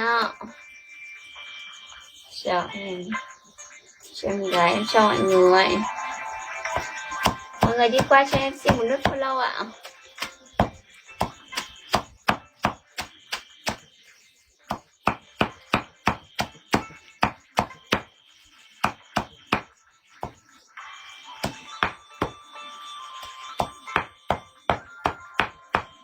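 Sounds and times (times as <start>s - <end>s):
rapid chopping strikes: 6.8s - 13.9s, 14.7s - 18.1s, 18.8s - 20.4s.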